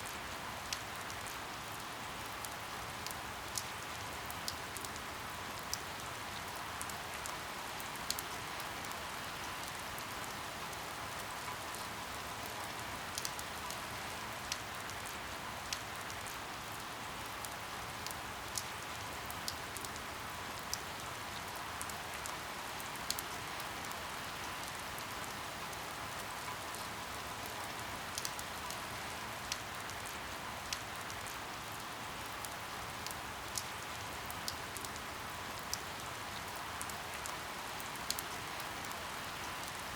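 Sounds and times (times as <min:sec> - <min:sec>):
rain falling: 0:00.0 - 0:39.9
raindrop ticks: 0:11.4 - 0:13.9, 0:26.4 - 0:31.4, 0:36.8 - 0:39.9.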